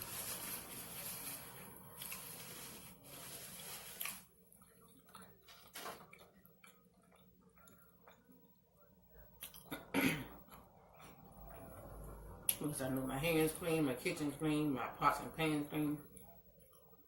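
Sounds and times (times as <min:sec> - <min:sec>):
person chewing food: 0:04.0 - 0:08.7.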